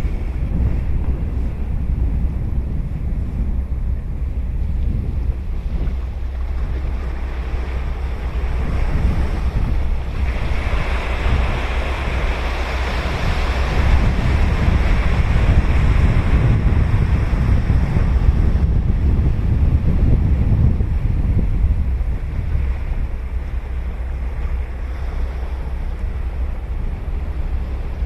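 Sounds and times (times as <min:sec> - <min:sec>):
ocean surf breaking: 0:00.0 - 0:28.0
wind on microphone: 0:00.0 - 0:28.0.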